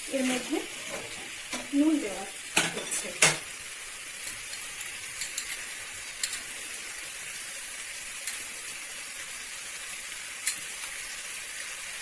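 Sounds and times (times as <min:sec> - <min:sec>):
chicken frying in oil: 0:00.0 - 0:12.0.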